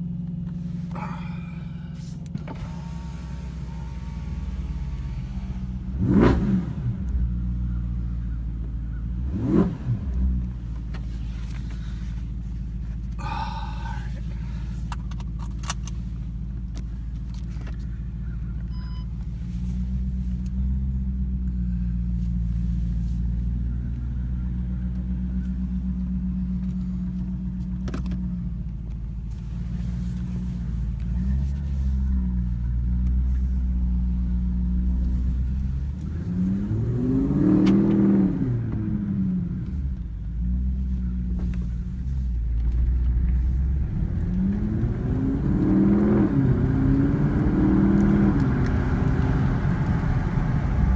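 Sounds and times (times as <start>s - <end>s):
car engine idling and revving: 0.0s - 50.9s.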